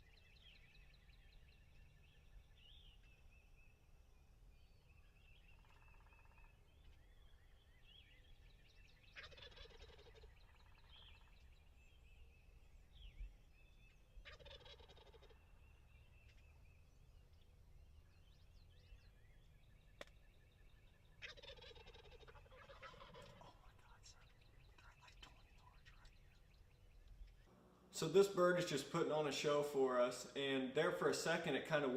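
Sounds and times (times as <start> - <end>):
turkey gobbling: 5.5 - 6.6, 9.1 - 11.4, 14.2 - 16.4, 21.0 - 25.2.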